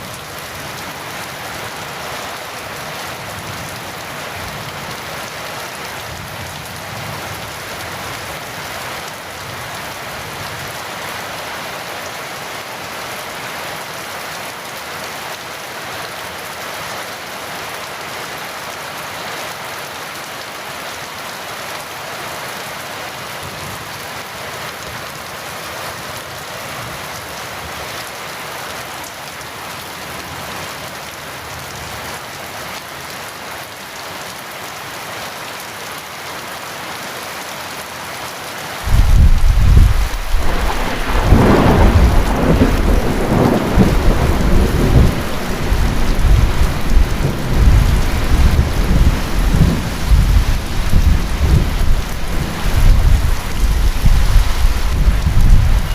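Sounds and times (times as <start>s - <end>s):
heavy rain: 0.0s - 55.9s
thunder rolling: 38.9s - 55.9s.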